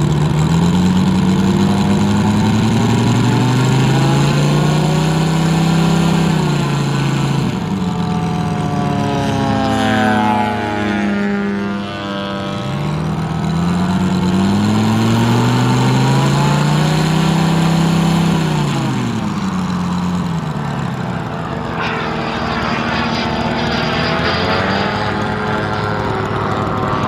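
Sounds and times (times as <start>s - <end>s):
model plane radial engine: 0.0s - 27.0s.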